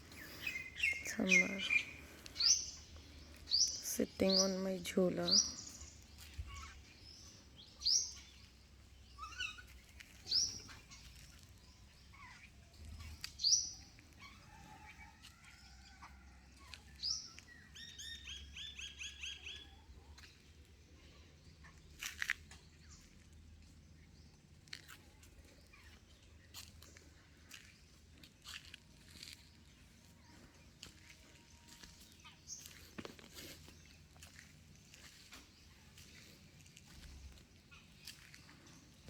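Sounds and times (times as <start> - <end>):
birds calling: 0.0 - 14.8.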